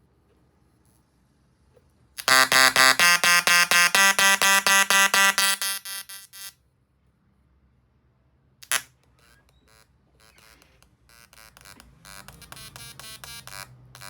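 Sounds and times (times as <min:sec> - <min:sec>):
tesla coil electric buzz: 0:02.2 - 0:06.6, 0:09.7 - 0:14.0.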